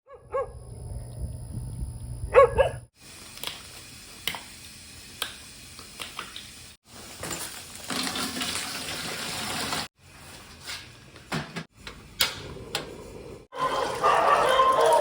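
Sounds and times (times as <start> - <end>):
dog barking: 0.1 - 0.6, 2.3 - 2.9, 13.6 - 15.0.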